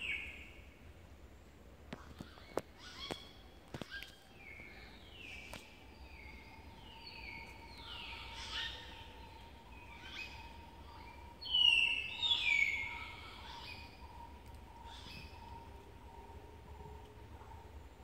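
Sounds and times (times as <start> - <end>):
faint steady tone: 0.0 - 18.0
birds whistling downward notes: 2.1 - 16.4.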